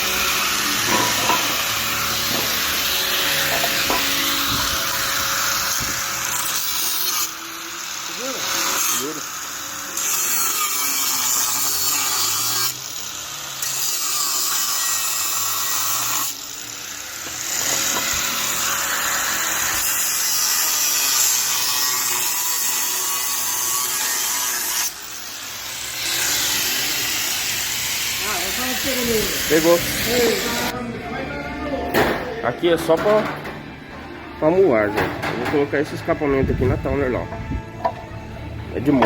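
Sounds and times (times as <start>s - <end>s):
power tool hissing: 0.0s - 30.7s.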